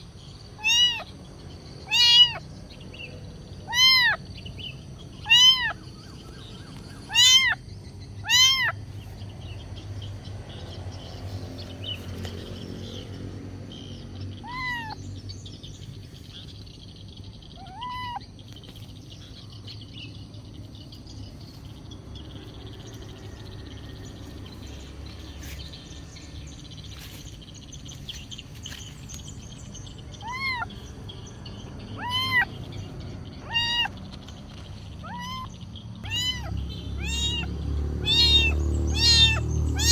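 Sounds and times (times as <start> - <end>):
kitten meowing: 0.6 - 1.1, 1.8 - 2.4, 3.6 - 4.2, 5.2 - 5.8, 7.1 - 7.6, 8.2 - 8.8, 14.4 - 15.0, 17.6 - 18.2, 30.2 - 30.8, 32.0 - 32.6, 33.4 - 34.0, 35.0 - 39.9.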